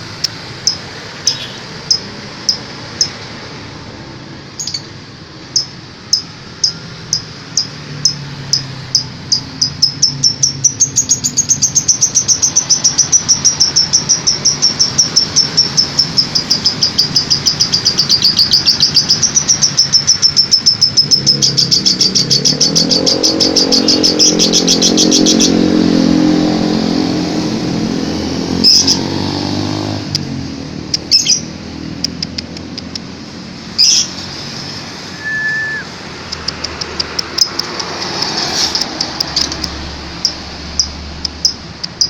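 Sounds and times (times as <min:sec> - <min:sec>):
lovebird chattering: 0:00.2 - 0:03.2, 0:04.6 - 0:04.9, 0:05.5 - 0:25.6, 0:30.9 - 0:33.0, 0:33.7 - 0:42.0
low engine hum: 0:21.0 - 0:42.0.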